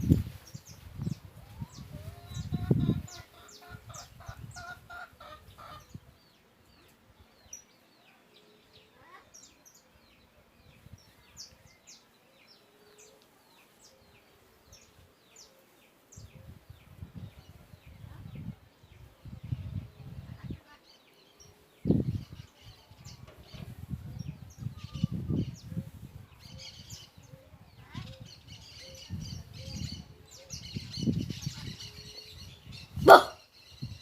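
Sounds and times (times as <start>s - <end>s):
bird clucking call: 33.0s - 33.4s.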